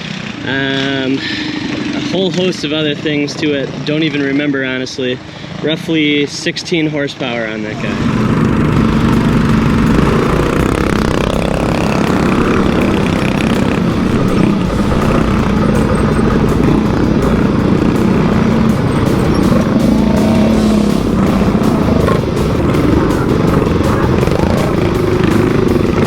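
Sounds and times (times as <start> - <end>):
minibike engines running: 0.0 - 26.0.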